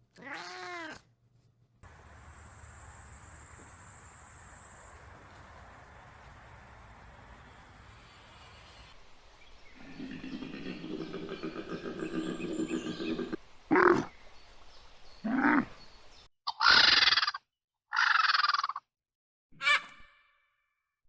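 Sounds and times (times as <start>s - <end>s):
mixed animal noise: 1.8s - 9.0s, 9.7s - 14.2s, 15.2s - 15.8s.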